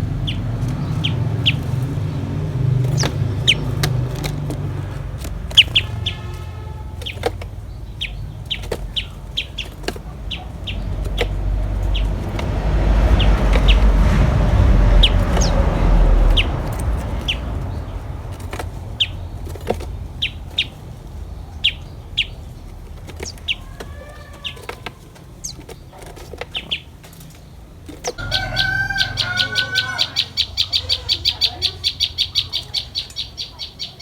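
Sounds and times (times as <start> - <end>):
loud low rumble: 0.0 - 22.8
bird chirping: 0.0 - 34.0.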